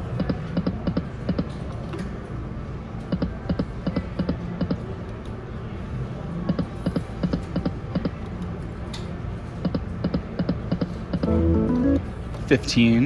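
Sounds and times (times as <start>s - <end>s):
casino hubbub: 0.0s - 12.8s
slot machine reel ticks: 11.2s - 12.0s.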